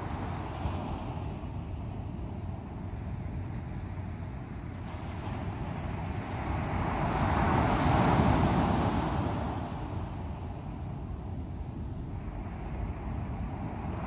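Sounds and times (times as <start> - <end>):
ocean waves rushing: 4.8 - 14.0.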